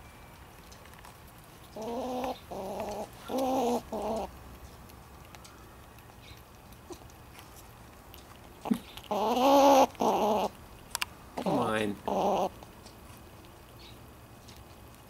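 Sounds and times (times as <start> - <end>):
squirrel calling: 1.6 - 4.4, 8.6 - 10.6, 11.4 - 12.6.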